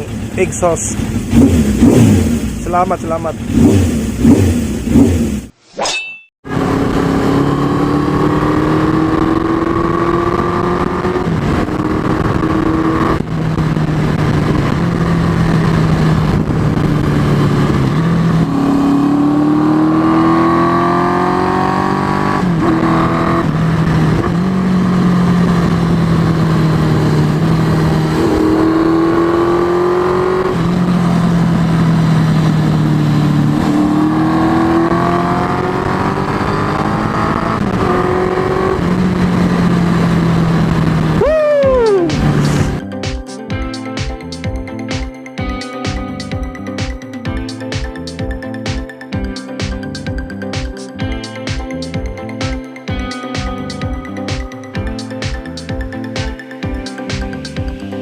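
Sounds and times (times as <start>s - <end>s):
motorcycle engine revving: 0.0s - 5.6s, 6.5s - 42.9s.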